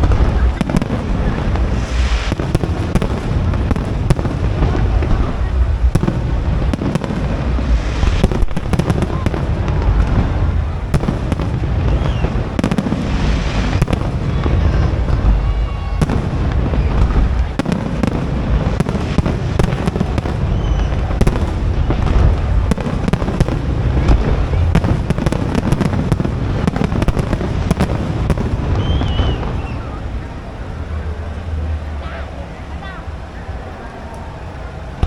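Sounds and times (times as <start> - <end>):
deep rumbling booms: 0.0 - 32.0
firework bangs and crackling: 0.0 - 32.0
short high whistles: 28.8 - 30.0.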